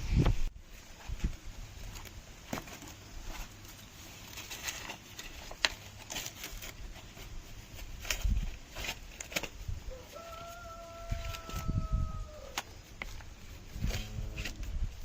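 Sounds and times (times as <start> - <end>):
dry maize plants rustling and snapping: 0.1 - 15.0.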